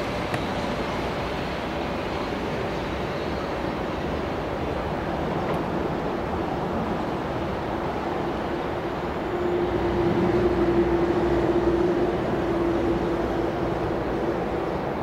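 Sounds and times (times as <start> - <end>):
train running past: 0.0 - 15.0
steady tone: 9.2 - 14.6.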